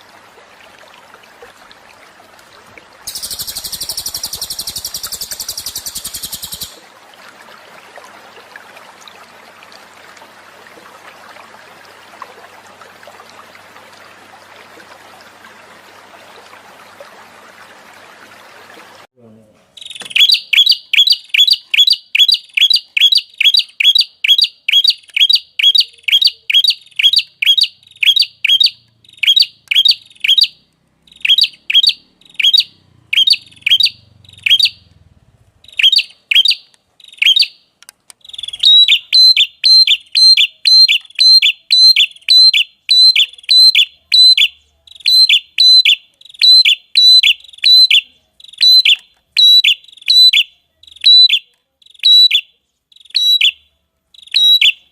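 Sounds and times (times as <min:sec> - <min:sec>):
songbird high sharp call: 0:03.1 - 0:06.8, 0:19.8 - 0:34.8.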